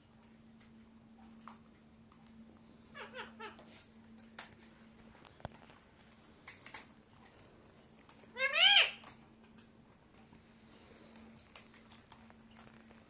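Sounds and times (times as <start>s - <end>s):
faint steady hum: 0.0s - 13.0s
parrot chirping: 3.0s - 3.6s, 8.3s - 9.0s.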